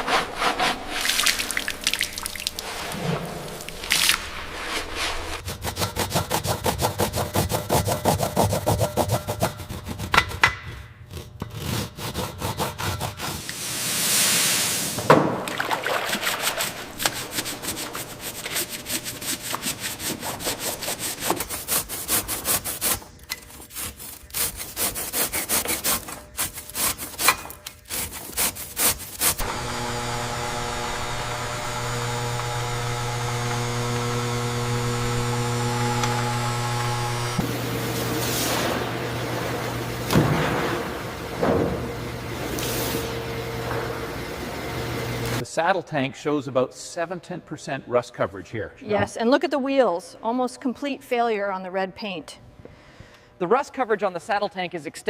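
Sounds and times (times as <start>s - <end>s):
hand scraping a surface: 0.0s - 1.6s, 2.6s - 15.1s, 16.1s - 29.5s
brief hiss: 13.5s - 15.0s
steady electric hum: 23.0s - 45.4s.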